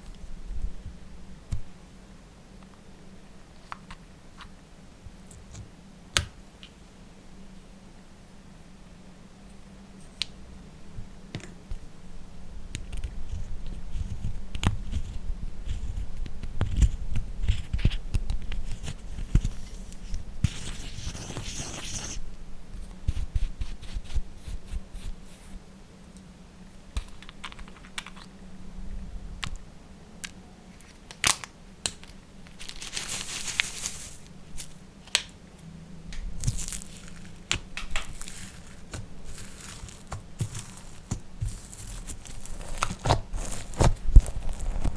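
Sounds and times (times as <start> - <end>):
slime crackling and tearing: 36.4 - 44.9.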